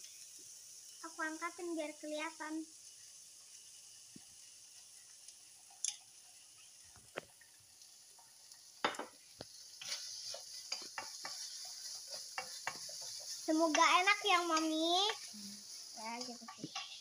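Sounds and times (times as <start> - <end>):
food sizzling in a wok: 0.0 - 17.0
wooden spatula scraping pan: 9.7 - 17.0.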